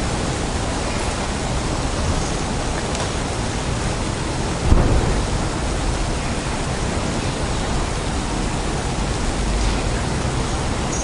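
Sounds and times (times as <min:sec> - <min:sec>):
rain hiss: 0:00.0 - 0:11.0
dull low thump: 0:04.6 - 0:06.1
low rumble: 0:04.6 - 0:06.4.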